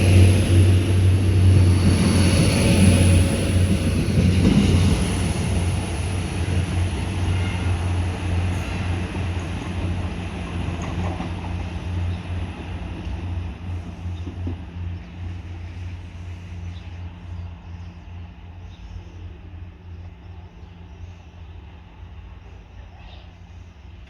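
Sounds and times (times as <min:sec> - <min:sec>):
diesel train engine drone: 0:00.0 - 0:24.0.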